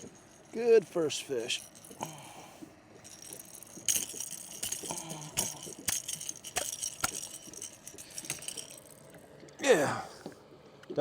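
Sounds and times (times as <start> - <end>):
sharp knocks and clinks: 2.9 - 9.2.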